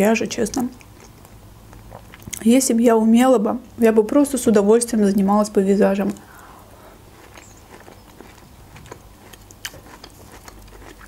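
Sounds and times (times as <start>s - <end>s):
quiet wet chewing: 0.5s - 2.5s, 6.1s - 11.0s.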